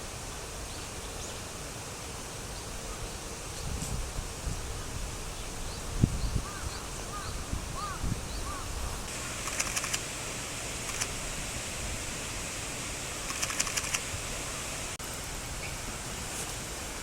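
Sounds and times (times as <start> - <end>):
outdoor background noise: 0.0 - 17.0
rapid clicking: 9.4 - 10.0, 13.3 - 14.0.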